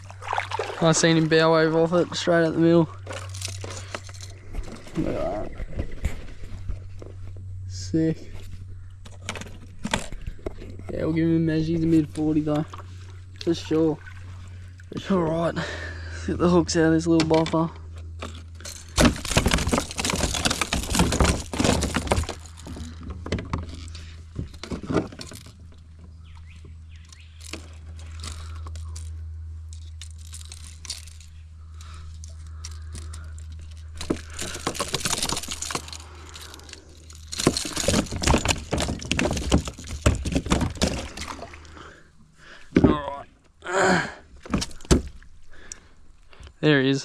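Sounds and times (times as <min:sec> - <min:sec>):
handling noise: 0:00.0 - 0:14.2, 0:17.0 - 0:41.7
steady low hum: 0:00.0 - 0:47.0
metal hooks clinking: 0:03.0 - 0:05.0, 0:26.9 - 0:40.0.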